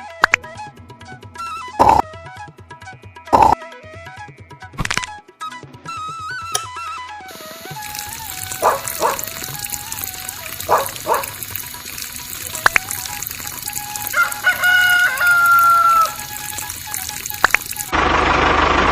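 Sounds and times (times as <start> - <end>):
rooster crowing: 14.0 - 16.5.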